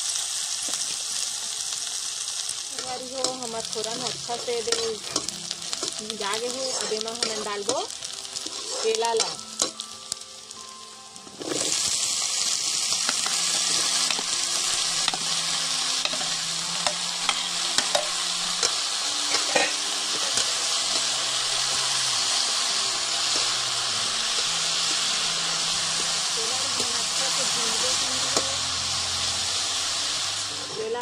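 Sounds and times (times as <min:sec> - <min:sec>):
food sizzling in hot oil: 0:00.0 - 0:31.0
spatula scraping pan: 0:06.4 - 0:07.8, 0:08.4 - 0:09.4, 0:19.3 - 0:21.0.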